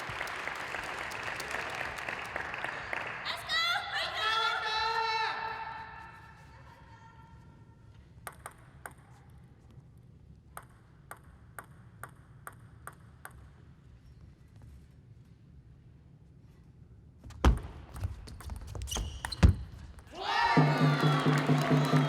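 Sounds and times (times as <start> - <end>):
low hall hum: 0.0 - 18.9, 19.6 - 22.0
table tennis ball clicking: 8.3 - 9.0, 10.6 - 13.5.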